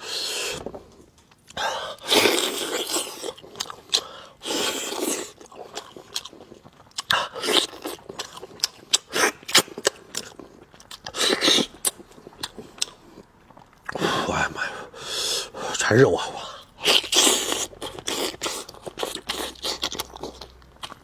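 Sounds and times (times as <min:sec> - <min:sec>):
person eating: 0:00.0 - 0:21.0
wet chewing clicks: 0:16.8 - 0:21.0.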